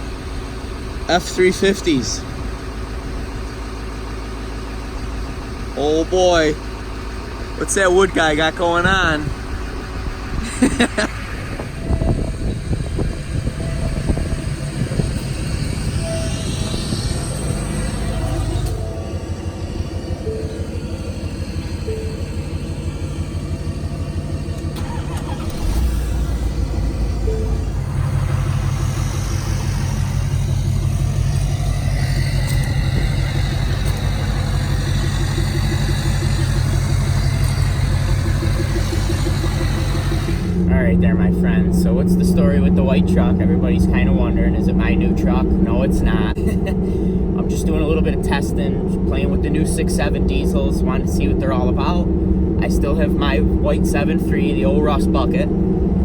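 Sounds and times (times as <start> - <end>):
vehicle engine humming: 0.0 - 56.0
wind buffeting microphone: 8.5 - 22.1, 24.8 - 56.0.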